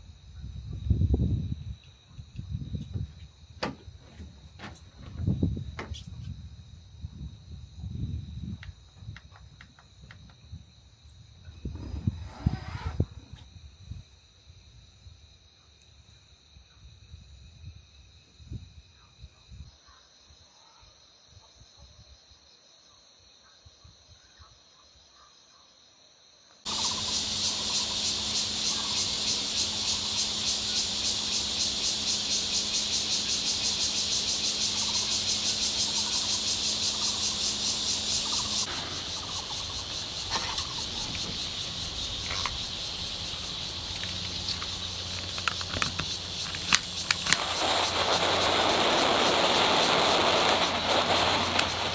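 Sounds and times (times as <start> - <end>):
insects trilling chorus: 8.8 - 14.6, 26.7 - 51.9.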